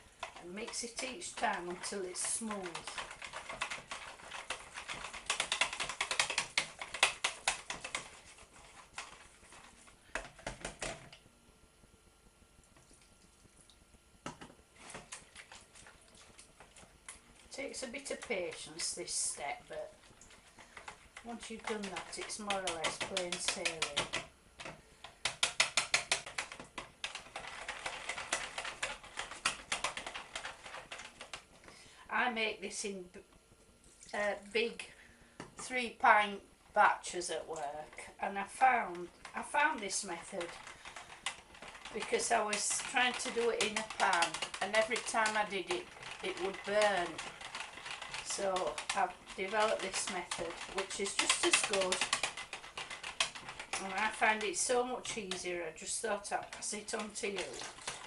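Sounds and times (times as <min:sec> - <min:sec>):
whisk clicking against jug: 0:00.2 - 0:11.3, 0:19.6 - 0:31.4, 0:38.9 - 0:58.0.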